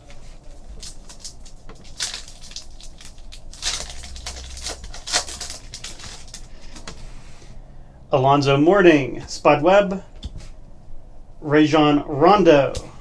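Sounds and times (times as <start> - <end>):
foil wrapper crinkling: 0.0 - 7.0
cards being handled: 0.1 - 6.9.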